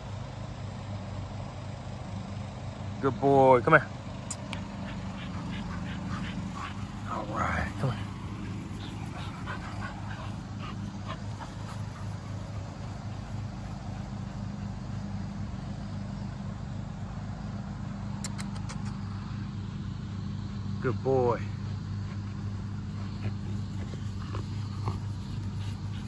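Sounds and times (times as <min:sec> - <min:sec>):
steady low hum: 0:00.0 - 0:26.0
puppy sounds: 0:04.3 - 0:15.5, 0:21.8 - 0:26.0
sharp clicks: 0:18.2 - 0:19.0.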